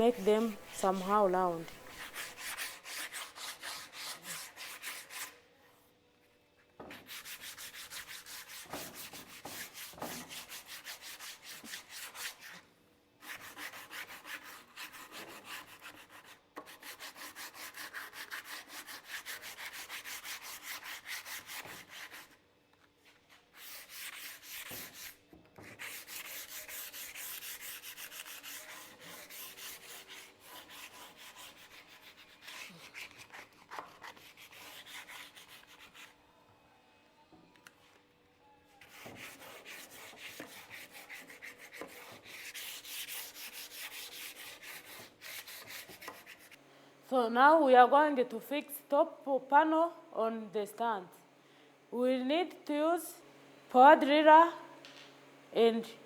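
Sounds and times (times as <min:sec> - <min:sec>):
sandpaper rubbing on wood: 0:00.0 - 0:05.4, 0:06.9 - 0:12.6, 0:13.2 - 0:22.4, 0:23.5 - 0:36.1, 0:38.8 - 0:46.6.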